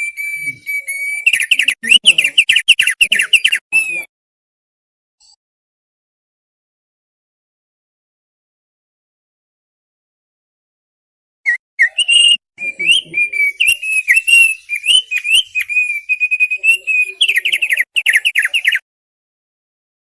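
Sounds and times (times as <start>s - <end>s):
bird singing whistled chirps: 0.0s - 4.1s, 11.5s - 18.8s.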